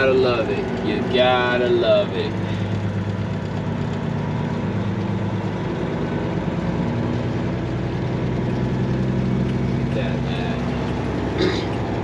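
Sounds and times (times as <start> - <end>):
diesel truck engine humming: 0.0 - 12.0.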